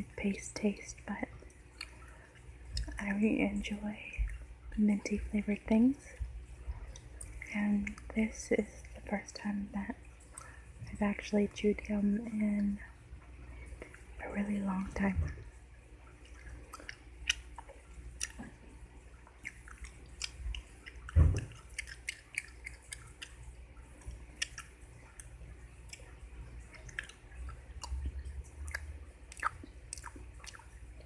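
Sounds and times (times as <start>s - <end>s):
chewing gum mouth clicks: 1.8s - 2.1s, 2.7s - 3.0s, 16.2s - 18.6s, 19.2s - 30.8s
low thump: 21.2s - 21.5s.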